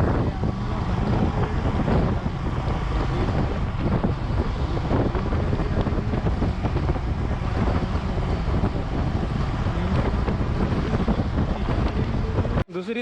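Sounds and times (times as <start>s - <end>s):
motorcycle engine running: 0.0s - 12.6s
wind rushing over microphone: 0.0s - 12.7s.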